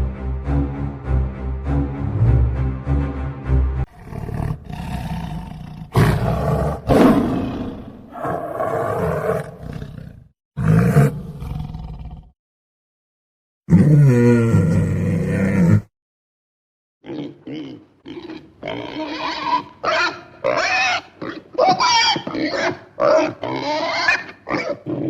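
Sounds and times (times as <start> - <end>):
loud animal roars: 3.9 - 12.3, 13.7 - 15.9.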